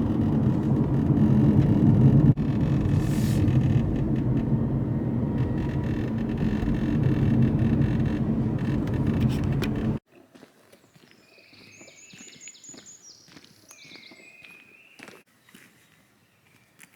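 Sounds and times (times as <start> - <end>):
motor vehicle engine rumbling: 0.0 - 10.0.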